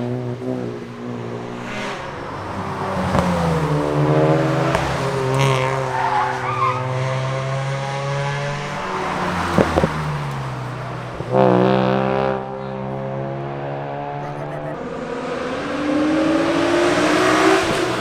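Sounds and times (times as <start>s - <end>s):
car engines revving: 0.0s - 18.0s
sharp engine pops: 4.6s - 5.8s.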